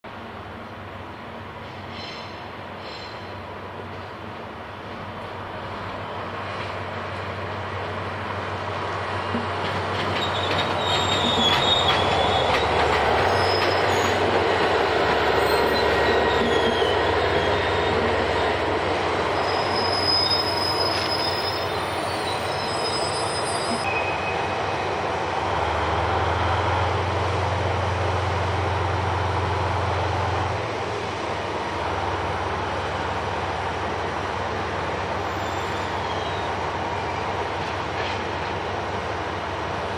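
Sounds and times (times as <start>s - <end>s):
low locomotive drone: 0.1s - 39.9s
train wheels squealing: 1.7s - 3.4s, 9.3s - 14.4s, 15.2s - 18.2s, 19.2s - 24.9s, 35.2s - 37.3s.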